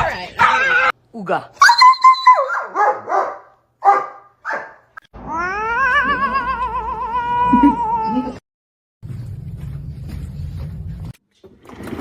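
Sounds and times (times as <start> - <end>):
cat yowling: 5.3 - 8.4.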